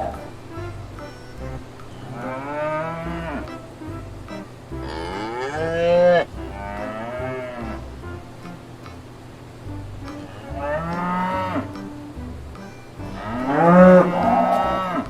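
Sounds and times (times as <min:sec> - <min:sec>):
cow mooing: 0:02.2 - 0:03.6, 0:04.8 - 0:07.8, 0:10.3 - 0:11.7, 0:13.1 - 0:15.0.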